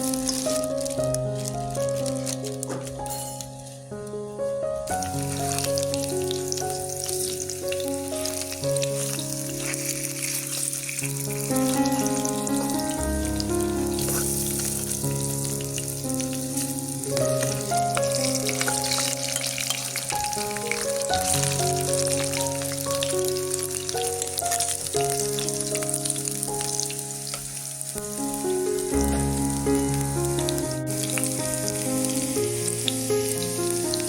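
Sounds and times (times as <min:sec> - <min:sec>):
food sizzling in hot oil: 0:00.0 - 0:03.8, 0:04.9 - 0:34.0
slow background music: 0:00.0 - 0:34.0.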